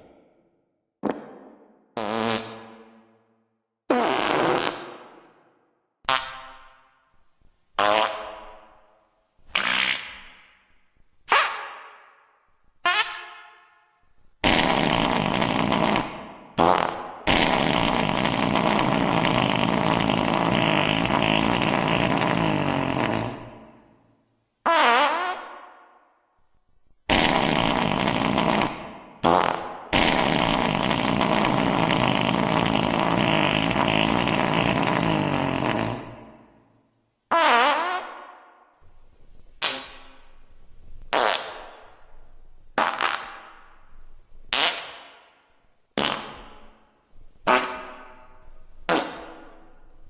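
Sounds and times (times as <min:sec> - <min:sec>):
fart sound effects: 0:01.0 - 0:03.2, 0:03.9 - 0:05.5, 0:06.1 - 0:06.8, 0:07.8 - 0:08.7, 0:09.5 - 0:10.6, 0:12.8 - 0:13.3, 0:14.4 - 0:23.8, 0:24.7 - 0:25.7, 0:27.1 - 0:36.6, 0:37.3 - 0:38.4, 0:39.6 - 0:40.4, 0:41.1 - 0:42.1, 0:42.8 - 0:43.9, 0:44.5 - 0:45.4, 0:46.0 - 0:46.8, 0:47.4 - 0:49.8.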